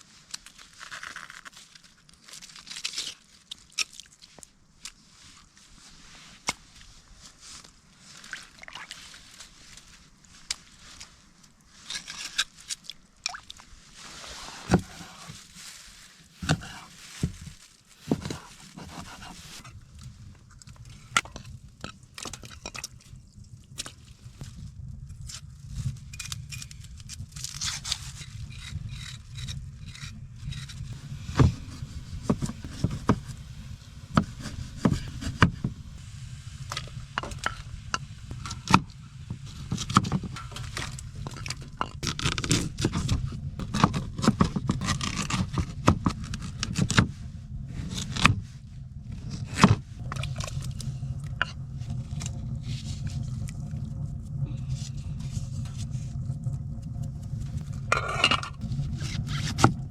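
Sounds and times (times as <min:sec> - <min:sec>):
gear scraping and knocking: 0:14.1 - 0:15.5, 0:16.4 - 0:19.8, 0:25.2 - 0:59.9
steady low rumble: 0:18.1 - 0:59.9.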